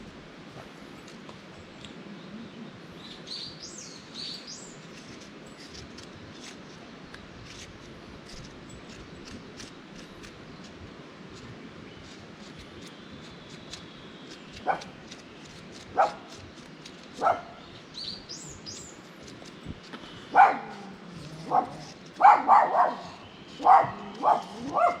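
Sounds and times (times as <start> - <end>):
bird chirping: 1.6 - 5.7, 11.9 - 19.7
dog barking: 16.0 - 16.2, 17.2 - 17.6, 20.3 - 25.0.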